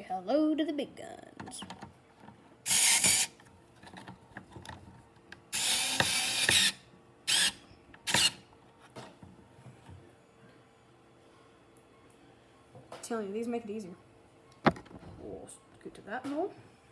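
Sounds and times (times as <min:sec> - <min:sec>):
powered screwdriver driving screw: 0:02.7 - 0:03.4, 0:05.6 - 0:08.4.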